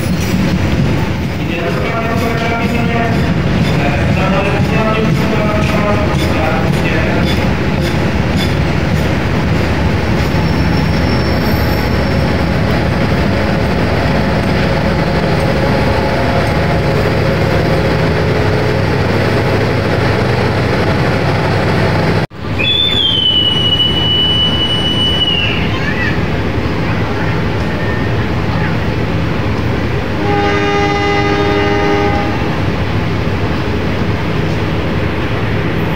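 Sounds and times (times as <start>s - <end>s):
train wheels rumbling on rail: 0.0s - 35.9s
train wheel squeal: 10.2s - 12.5s, 22.5s - 25.8s.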